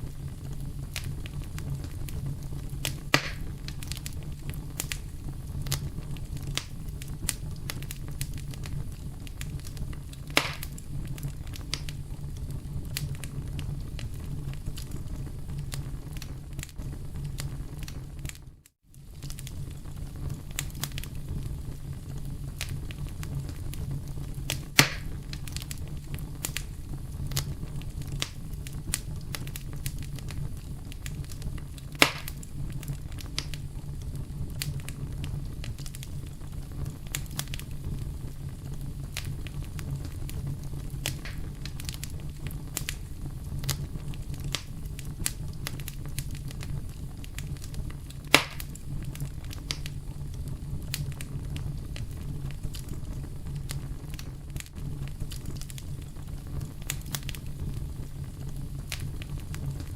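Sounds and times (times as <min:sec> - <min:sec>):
campfire wood crackling: 0:00.0 - 0:59.9
low rumble of flames: 0:00.0 - 0:59.9
sharp fire pops: 0:00.0 - 0:59.9.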